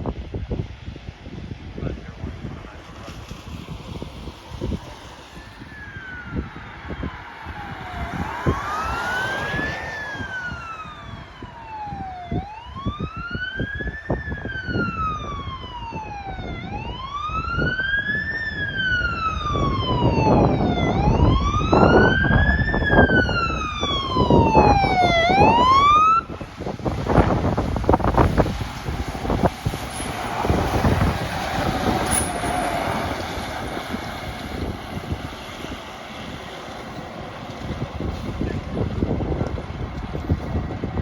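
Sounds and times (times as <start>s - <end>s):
engine and road rumble: 0.0s - 41.0s
electronic siren wailing: 4.2s - 36.4s.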